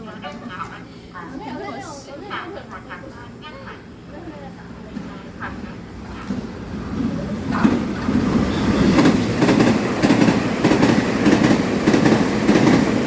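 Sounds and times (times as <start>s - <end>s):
electric train passing: 0.0s - 13.0s
train wheels clattering over joints: 5.5s - 13.0s.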